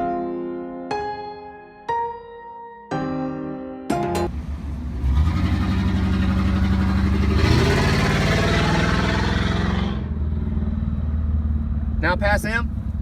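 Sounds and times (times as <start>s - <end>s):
road and wind noise: 4.3s - 13.0s
vehicle engine accelerating: 4.3s - 13.0s.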